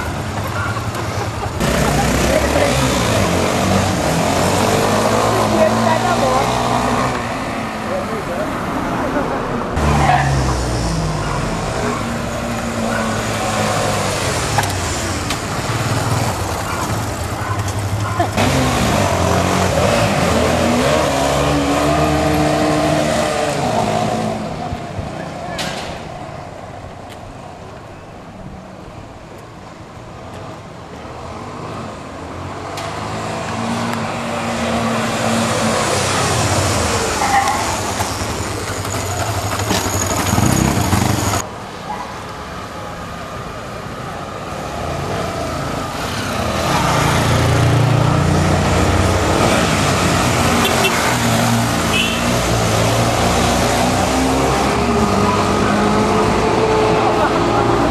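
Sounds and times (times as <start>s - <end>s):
motorcycle engine revving: 1.6s - 7.3s, 9.8s - 24.6s, 33.4s - 41.4s
motorcycle engine approaching: 37.6s - 41.4s.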